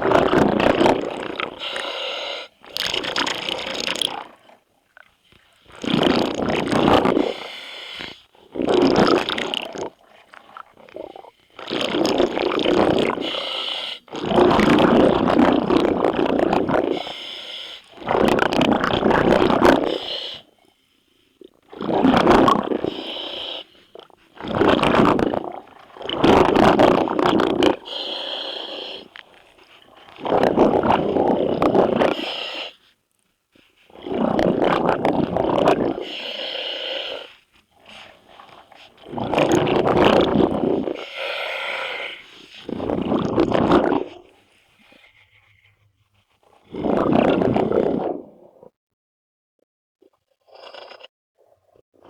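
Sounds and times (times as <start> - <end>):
exhaled bubbles gushing: 0.0 - 17.2, 17.8 - 20.5, 21.4 - 32.7, 33.7 - 36.4, 37.2 - 41.4, 42.2 - 45.0, 46.5 - 48.7
diver breathing through regulator: 0.8 - 4.0, 5.9 - 10.0, 10.9 - 15.7, 16.6 - 18.2, 19.1 - 33.0, 33.6 - 48.2.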